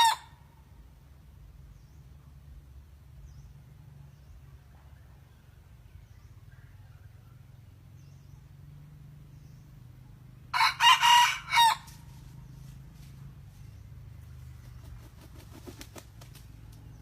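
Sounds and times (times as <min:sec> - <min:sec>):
rooster crowing: 0:00.0 - 0:00.4, 0:10.5 - 0:12.1.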